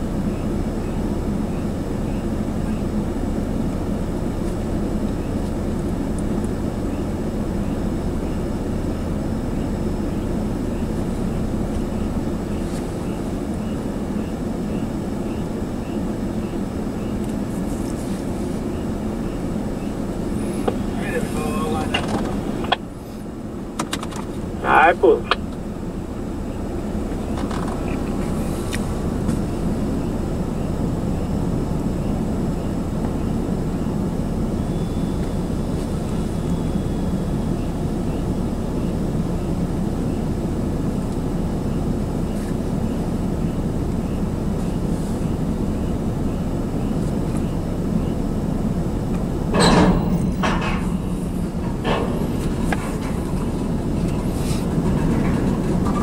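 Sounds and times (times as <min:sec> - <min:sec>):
freight cars clanking: 0:00.0 - 0:56.0
low rumble: 0:45.5 - 0:56.0.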